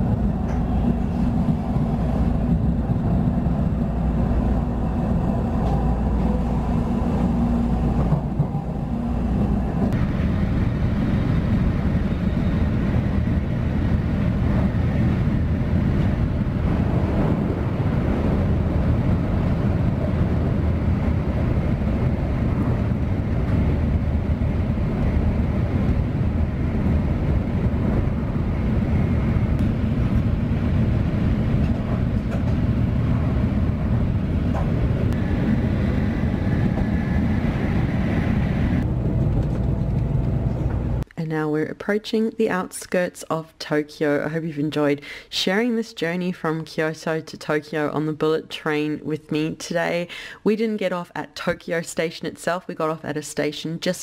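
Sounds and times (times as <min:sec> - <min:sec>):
train cabin rumble: 0:00.0 - 0:41.1.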